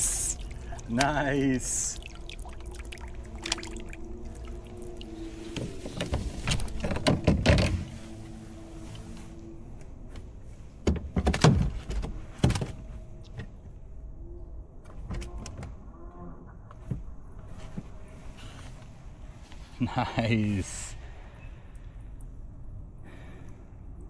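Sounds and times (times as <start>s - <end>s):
faint steady hum: 0.0s - 10.8s.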